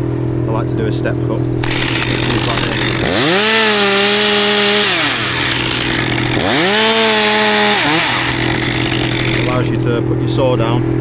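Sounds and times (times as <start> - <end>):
chainsaw revving and idling: 1.5 - 9.8.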